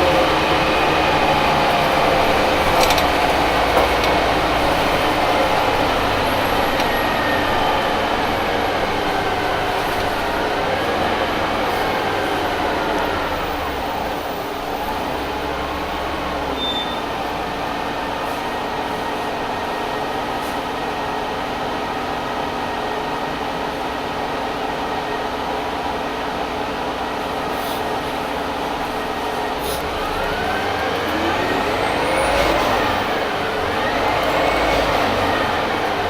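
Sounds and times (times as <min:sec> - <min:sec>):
bus engine droning with whine: 0:00.0 - 0:36.0.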